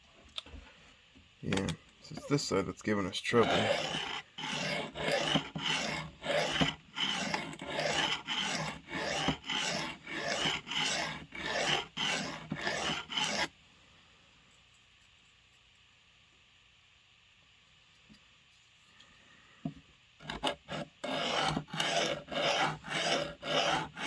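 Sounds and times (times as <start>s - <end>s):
blade scraping on sharpening stone: 3.4s - 13.5s, 20.3s - 24.0s.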